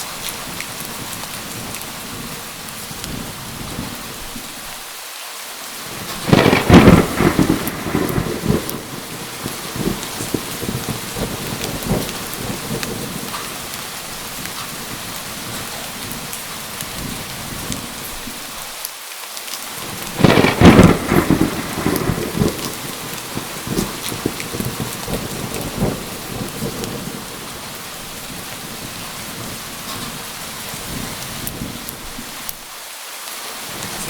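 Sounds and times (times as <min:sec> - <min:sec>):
heavy rain: 0:00.0 - 0:34.0
thunderclap rumbling: 0:05.9 - 0:18.6, 0:19.8 - 0:32.6, 0:33.7 - 0:34.0.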